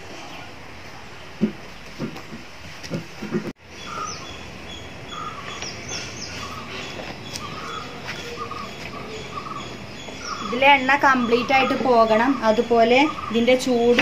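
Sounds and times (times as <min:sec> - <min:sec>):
steady background hum: 0:00.0 - 0:14.0
birds chirping and whistling: 0:03.6 - 0:14.0.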